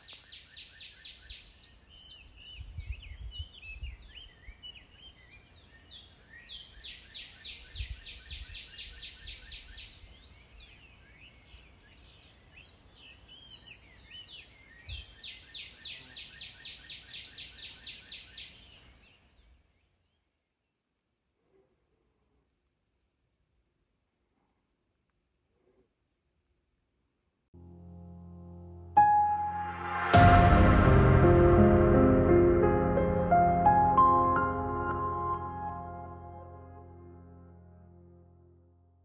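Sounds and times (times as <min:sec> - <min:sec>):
wild birds singing: 0:00.0 - 0:20.8
low rumbles: 0:29.6 - 0:37.3.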